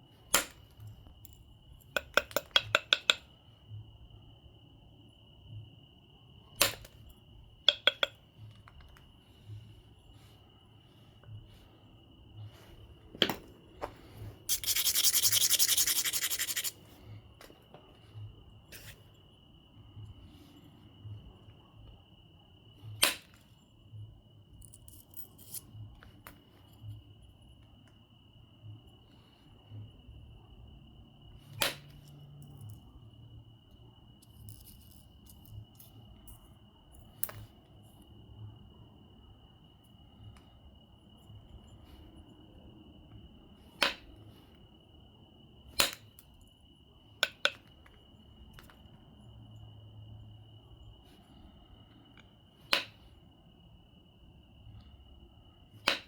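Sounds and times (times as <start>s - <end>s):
scratchy rubbing of stone edge: 14.5s - 16.8s
stone knapping clicks: 45.7s - 46.1s.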